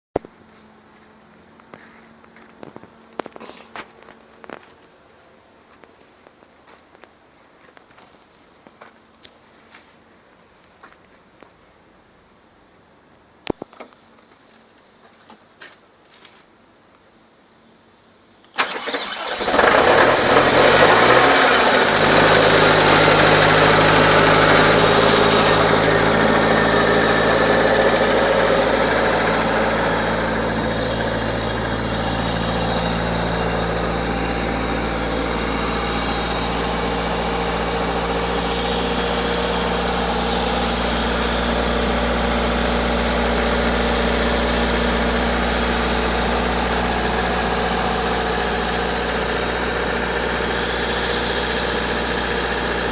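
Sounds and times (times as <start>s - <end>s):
air compressor diesel engine: 18.6s - 52.9s.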